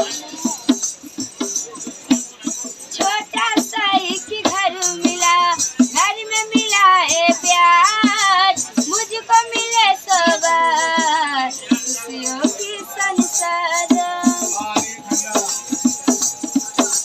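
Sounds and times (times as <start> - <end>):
girl singing: 3.0 - 15.1.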